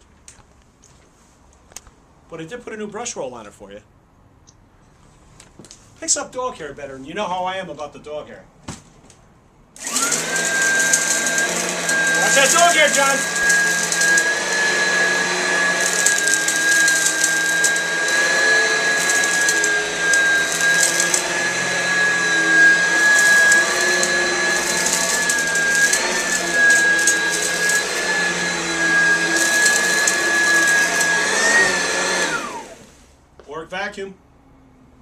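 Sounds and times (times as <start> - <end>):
crackling: 9.8 - 31.7
vacuum cleaner motor whine: 9.8 - 33.0.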